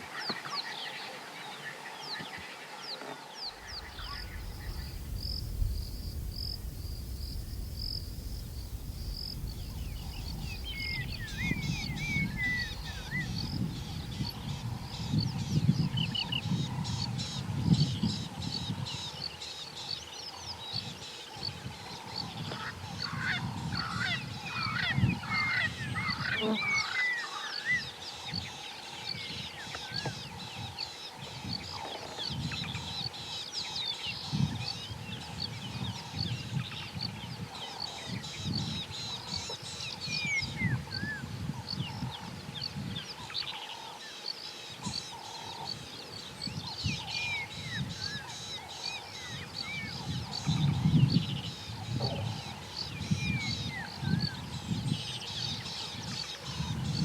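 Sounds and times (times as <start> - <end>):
wild birds chirping and whistling: 0.2 - 57.0
low rumble: 3.6 - 15.6.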